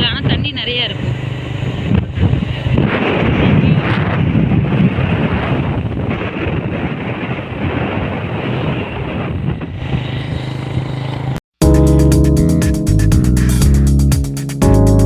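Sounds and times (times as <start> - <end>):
wind buffeting microphone: 0.0 - 10.9
music: 11.6 - 15.0.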